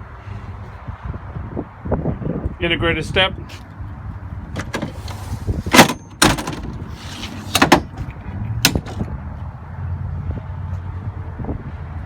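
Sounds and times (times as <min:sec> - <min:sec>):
pickup hardware clunking by hand: 0:04.5 - 0:09.1.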